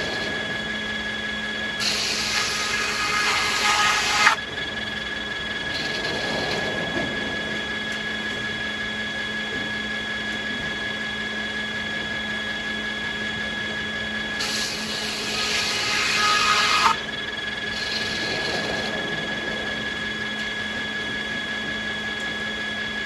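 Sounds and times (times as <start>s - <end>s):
sawmill machinery humming: 0.0s - 23.0s
saw cutting through wood: 1.8s - 4.4s, 5.7s - 6.6s, 14.3s - 17.0s, 17.6s - 18.9s.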